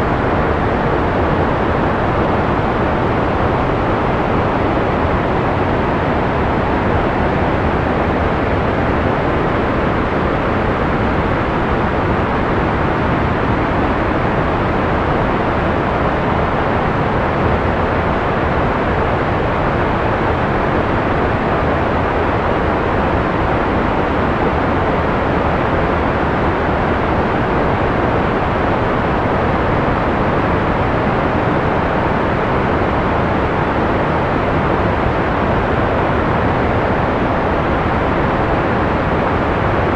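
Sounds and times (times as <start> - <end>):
muffled white noise hiss: 0.0 - 39.9.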